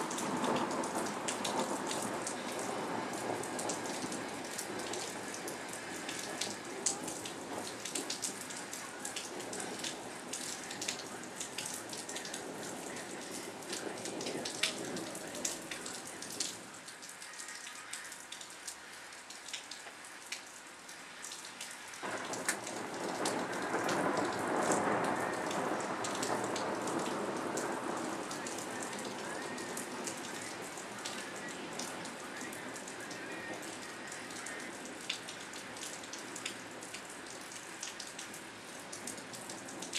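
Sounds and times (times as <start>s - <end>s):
steady rain with drops ticking: 0.0s - 39.9s.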